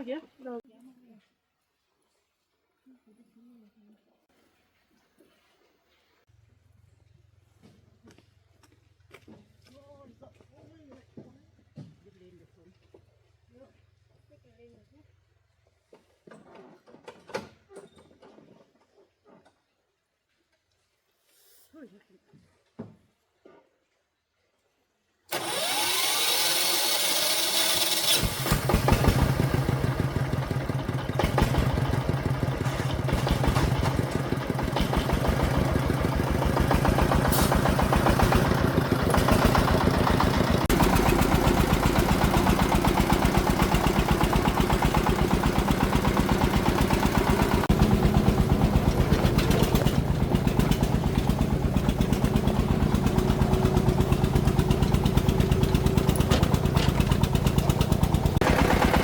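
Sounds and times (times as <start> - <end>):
diesel engine chugging: 25.3 - 59.0.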